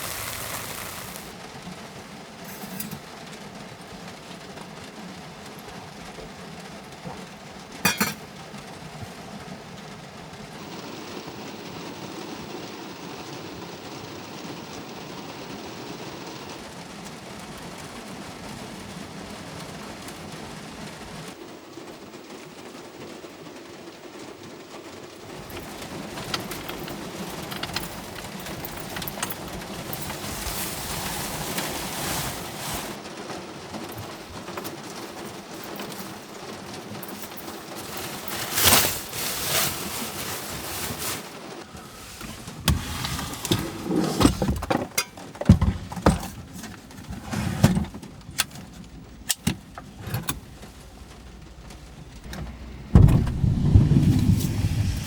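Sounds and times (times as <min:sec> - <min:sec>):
steady rain: 0:00.0 - 0:43.7, 0:46.0 - 0:55.0
dishes or glass clinking: 0:07.9 - 0:08.2.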